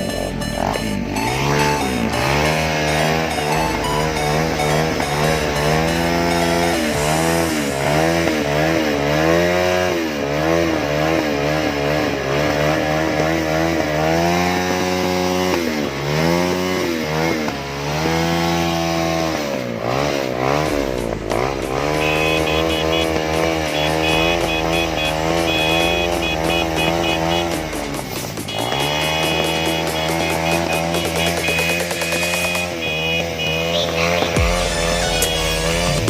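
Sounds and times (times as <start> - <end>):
motorcycle engines revving: 0.0 - 36.0
rapid pulsing high-pitched tone: 21.6 - 32.7.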